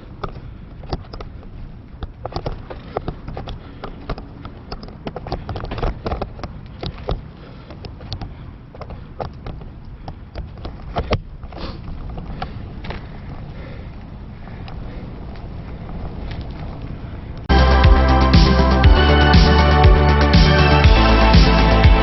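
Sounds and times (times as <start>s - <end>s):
bike clicking and knocking: 0.0s - 16.8s
wind and tyre rumble: 0.0s - 17.5s.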